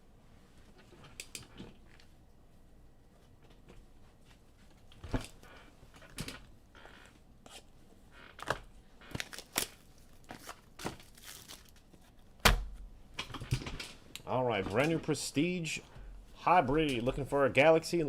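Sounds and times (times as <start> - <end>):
plastic packaging crinkling: 9.1 - 12.2.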